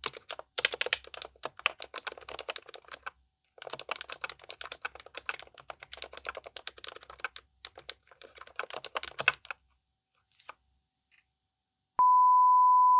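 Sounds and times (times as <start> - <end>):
fast typing on mechanical keyboard: 0.0 - 9.6.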